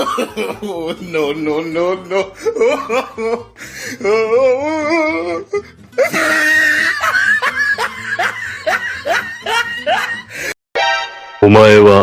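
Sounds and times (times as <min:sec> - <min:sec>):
laughter: 0:00.0 - 0:01.4, 0:02.1 - 0:03.5, 0:06.0 - 0:10.5.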